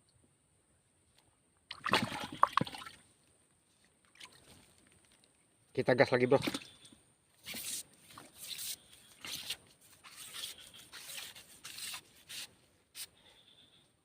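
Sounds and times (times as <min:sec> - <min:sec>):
rustling scraping strokes: 0:07.4 - 0:13.2.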